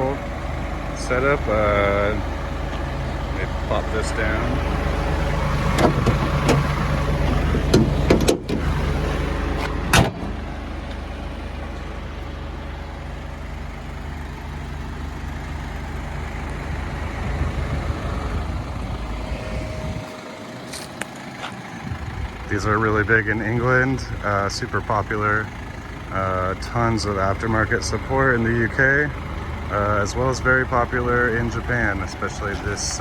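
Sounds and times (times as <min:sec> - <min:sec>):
diesel engine idling: 0:00.0 - 0:33.0
engine cover shutting thump: 0:05.6 - 0:08.8, 0:09.5 - 0:11.0
handling clicks and knocks: 0:05.7 - 0:08.7.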